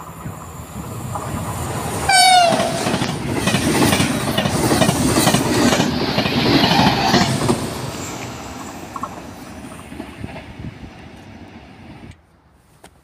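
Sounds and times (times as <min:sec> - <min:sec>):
high-speed train passing: 0:00.0 - 0:12.2
train horn blast: 0:02.1 - 0:03.0.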